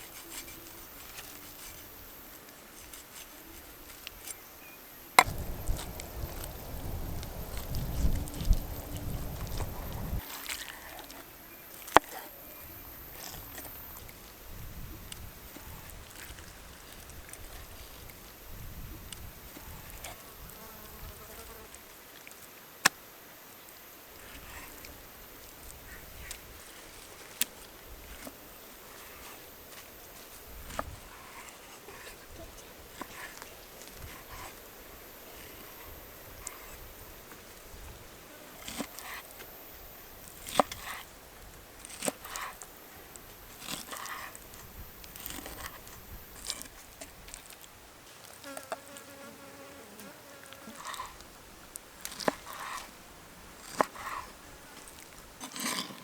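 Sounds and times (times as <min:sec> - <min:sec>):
faint outdoor background: 0:00.0 - 0:56.0
insect buzzing: 0:05.2 - 0:10.2, 0:19.6 - 0:21.8.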